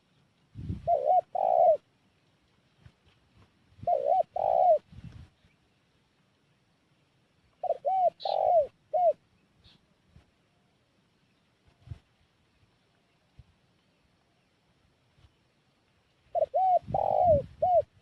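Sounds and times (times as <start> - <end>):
dove cooing: 0.7 - 1.9, 3.8 - 4.9, 7.6 - 9.3, 16.3 - 18.0.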